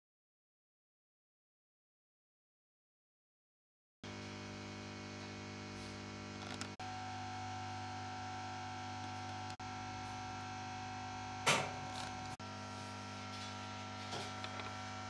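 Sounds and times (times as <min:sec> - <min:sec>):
amplifier mains hum: 0:04.0 - 0:15.0.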